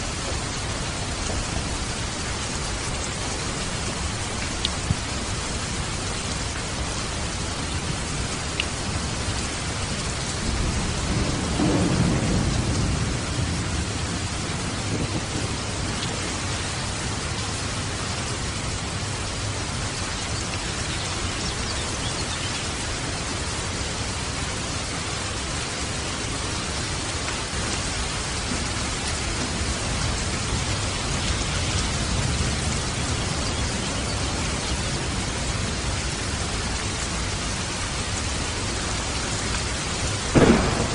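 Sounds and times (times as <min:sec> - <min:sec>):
falling water and rain: 0:00.0 - 0:40.9
thunder rumbling: 0:08.9 - 0:17.9, 0:40.0 - 0:40.9.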